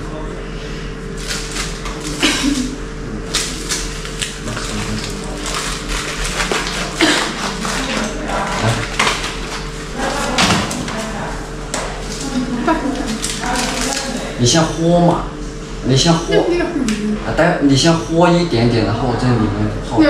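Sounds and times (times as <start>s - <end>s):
low electrical hum: 0.0s - 20.0s
pill packaging rustling and crinkling: 3.3s - 9.7s.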